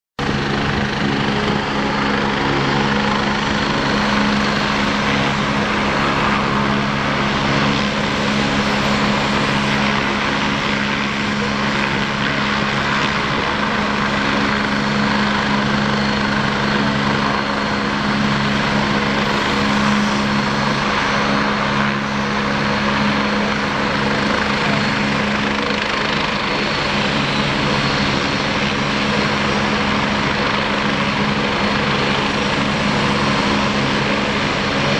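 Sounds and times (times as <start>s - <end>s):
helicopter rotor chop: 0.2s - 34.9s
helicopter turbine whine: 0.2s - 34.9s.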